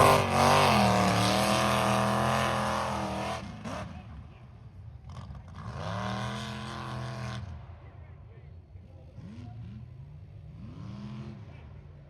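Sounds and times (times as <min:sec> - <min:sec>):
truck engine at high revs: 0:00.0 - 0:04.2, 0:05.0 - 0:07.6.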